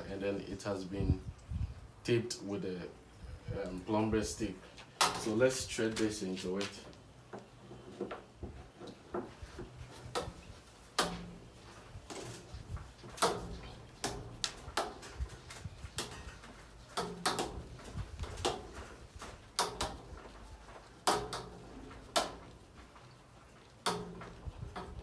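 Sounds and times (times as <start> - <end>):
sharp clicks and knocks: 5.0 - 25.0.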